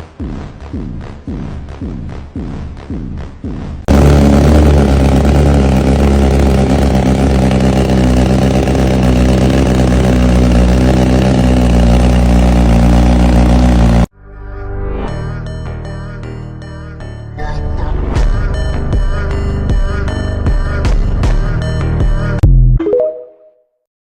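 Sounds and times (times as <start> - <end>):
motorcycle engine running loudly: 3.9 - 14.1.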